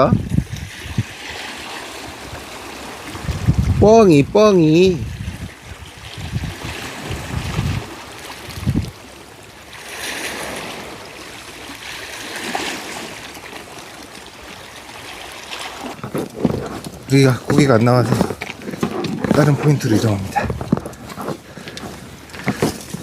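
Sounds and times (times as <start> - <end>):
wind buffeting microphone: 0.0 - 9.1, 16.0 - 23.0
sea: 0.0 - 23.0.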